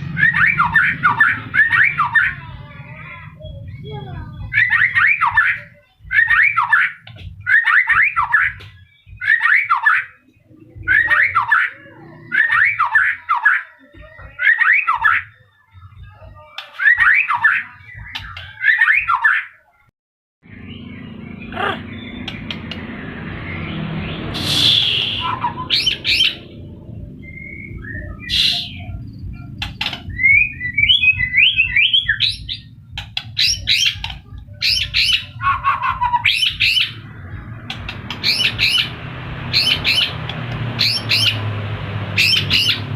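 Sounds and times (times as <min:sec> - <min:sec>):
bird singing: 0:00.0 - 0:19.6, 0:20.4 - 0:42.9
sharp bird clicks: 0:22.2 - 0:22.9, 0:29.5 - 0:30.2.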